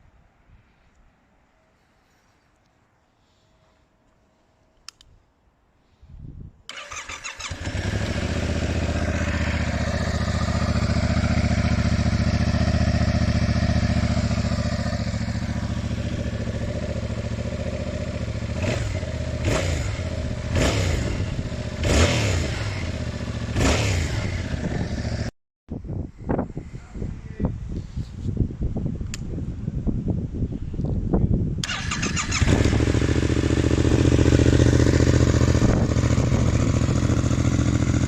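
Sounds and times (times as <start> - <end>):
motorcycle engine idling and revving: 6.7 - 25.4, 31.6 - 38.0.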